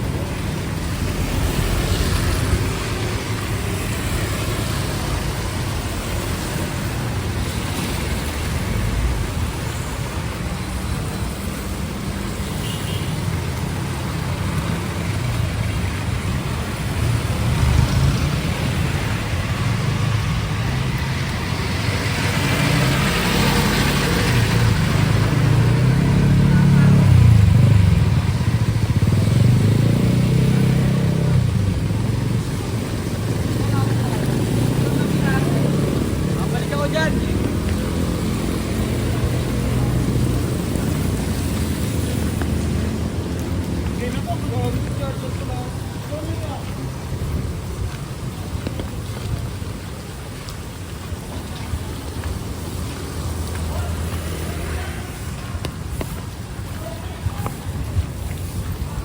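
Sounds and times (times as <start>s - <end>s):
vehicle passing loudly: 0.0s - 10.0s, 13.3s - 47.9s
cars and motorcycles passing: 0.0s - 59.0s.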